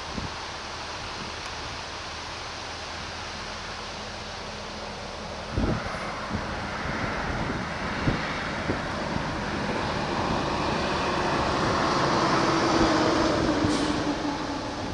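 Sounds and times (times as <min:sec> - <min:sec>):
wind gusts on microphone: 0:00.0 - 0:02.0, 0:05.4 - 0:14.9
vehicle passing: 0:05.5 - 0:14.9.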